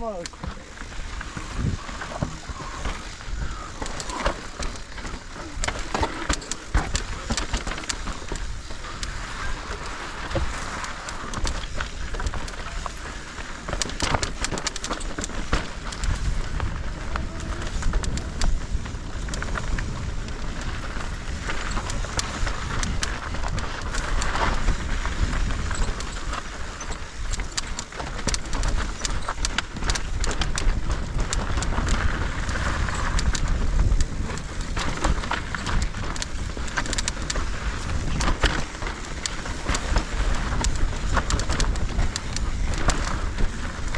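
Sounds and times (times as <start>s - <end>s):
mountain bike rattling: 0.0s - 43.9s
wind rumble on microphone: 15.4s - 26.8s, 29.4s - 43.9s.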